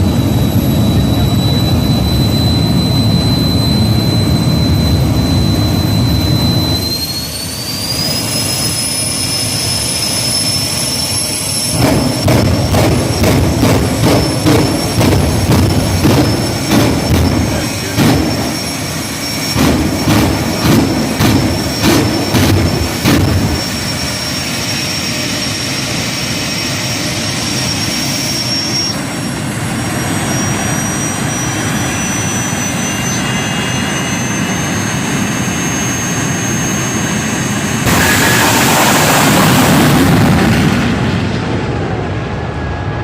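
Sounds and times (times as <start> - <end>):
turbine engine whine: 0.0 - 43.0
loud sharp bangs: 11.7 - 24.2, 37.8 - 41.4.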